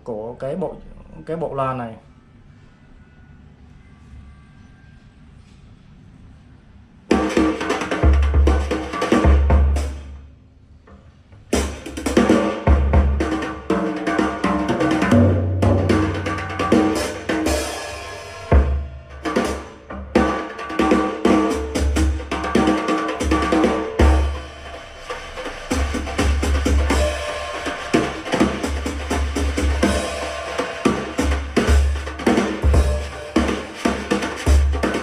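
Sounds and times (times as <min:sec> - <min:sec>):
drum-heavy music through speaker: 0:07.1 - 0:10.1, 0:11.5 - 0:35.0.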